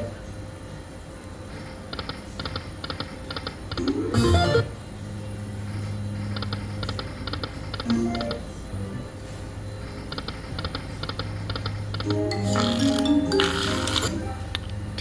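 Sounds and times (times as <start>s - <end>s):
steady electronic hum: 3.6s - 10.1s.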